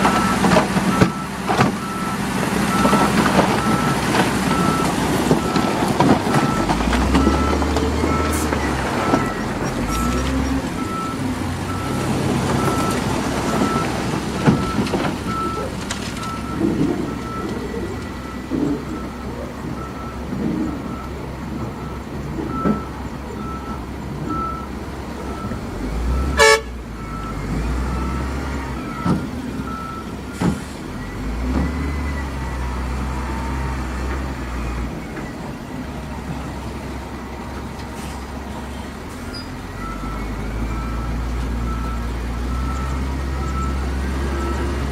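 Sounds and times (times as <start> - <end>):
reversing alarm beeping: 0.0 - 20.2, 25.3 - 33.9
diesel machinery engines running: 0.0 - 44.9
horn toot: 26.4 - 26.8.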